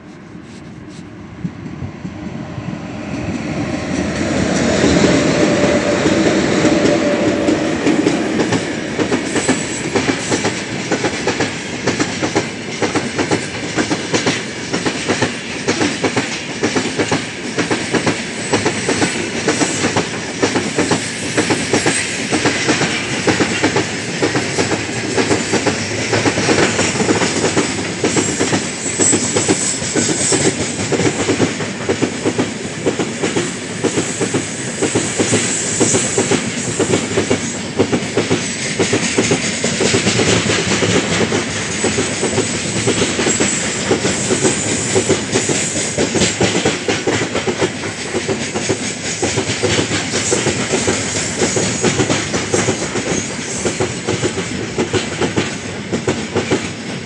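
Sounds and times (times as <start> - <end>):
train rolling rumble: 0.0 - 57.0.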